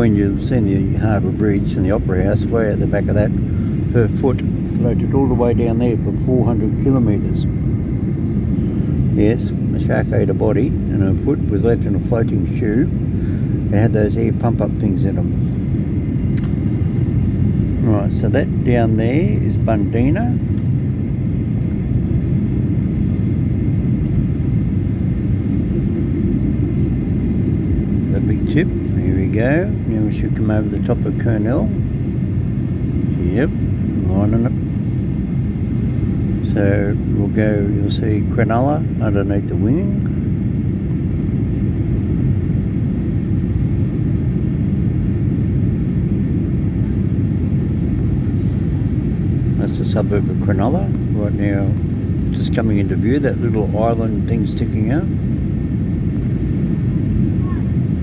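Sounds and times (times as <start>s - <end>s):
jet engines rumbling: 0.0s - 58.0s
rushing air: 3.3s - 9.8s, 12.8s - 13.8s.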